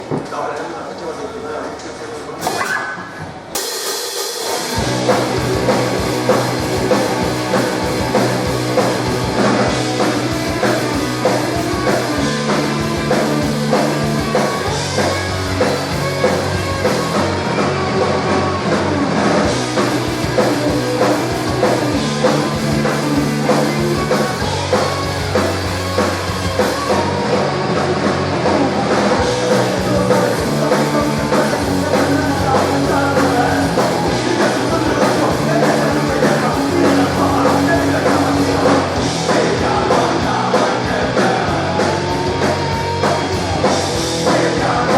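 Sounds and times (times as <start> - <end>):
live rock band playing: 2.4 - 44.9
bass line: 4.7 - 44.9.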